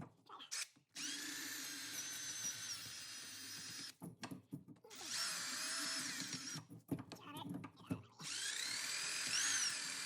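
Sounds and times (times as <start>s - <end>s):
power tool whining: 8.2s - 10.0s.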